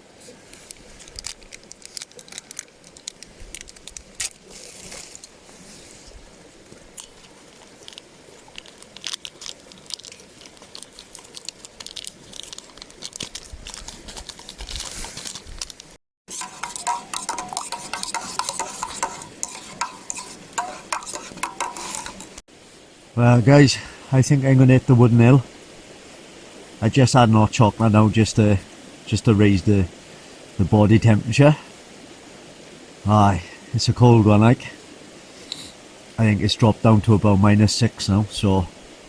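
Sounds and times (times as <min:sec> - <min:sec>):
metal spoon clinking in mug: 0:16.3 - 0:22.3.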